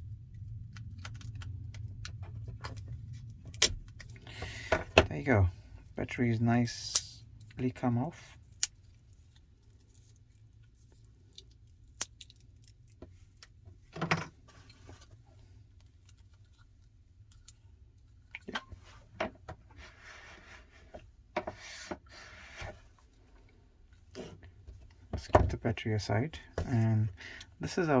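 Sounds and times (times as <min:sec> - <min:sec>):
rubbing and rustling: 0:18.7 - 0:25.1
scrape: 0:19.8 - 0:22.9.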